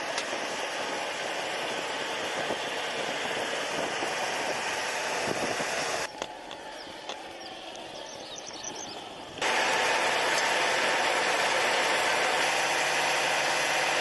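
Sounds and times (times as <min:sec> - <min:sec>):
jet engines rushing: 0:00.0 - 0:08.0.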